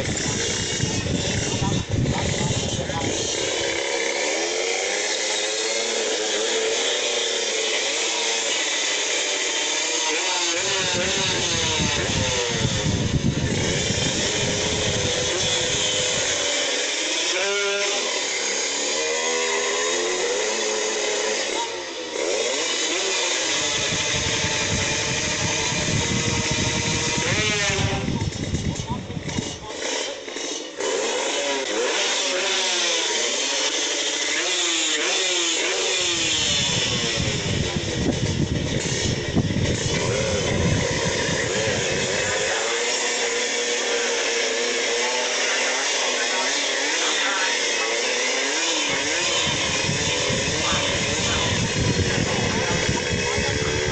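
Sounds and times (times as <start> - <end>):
motorcycle engines revving: 0.0 - 53.9.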